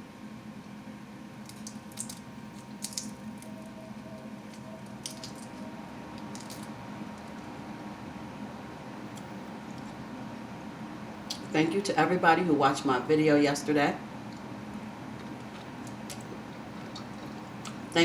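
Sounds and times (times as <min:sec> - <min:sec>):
steady low hum: 0:00.0 - 0:18.0
person chewing: 0:15.1 - 0:17.9.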